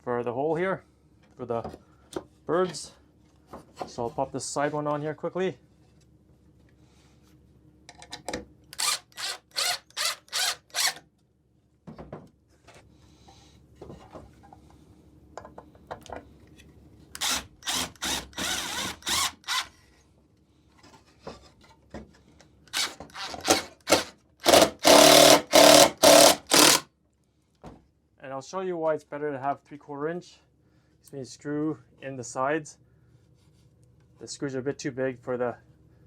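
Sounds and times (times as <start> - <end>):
power drill driving screws into wood: 8.8 - 11.0, 17.2 - 19.7, 22.7 - 26.8.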